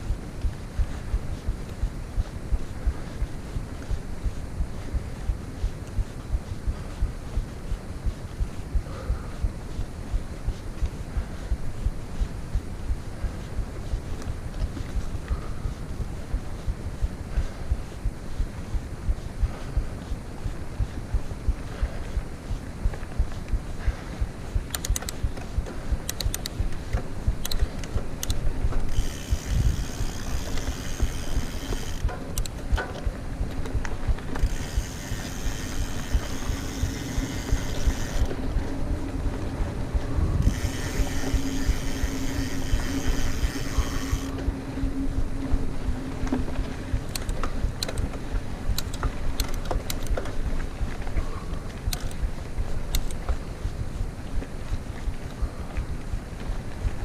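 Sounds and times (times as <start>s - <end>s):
wind rumble on microphone: 0.0s - 57.0s
bicycle freewheel ratchet ticking: 24.6s - 25.2s, 25.9s - 32.6s, 34.4s - 38.3s, 40.4s - 44.4s.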